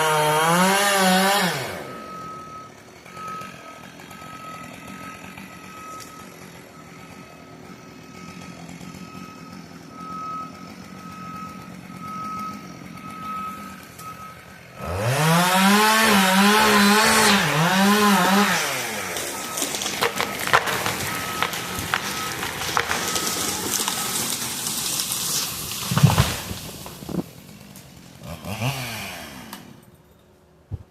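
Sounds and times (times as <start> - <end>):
reversing alarm beeping: 0.0 - 24.6
skid steer engine revving: 0.0 - 30.0
wood cracking and splintering: 14.8 - 28.9
tree falling heavy thump: 19.6 - 27.4.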